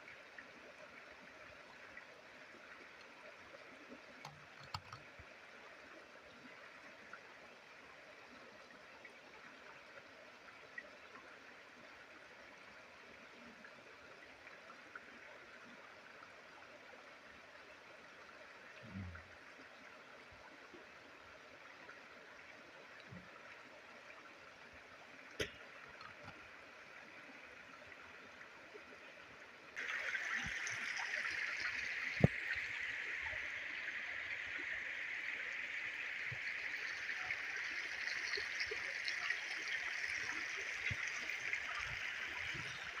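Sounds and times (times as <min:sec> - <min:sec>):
stream water rushing: 0:29.8 - 0:43.0.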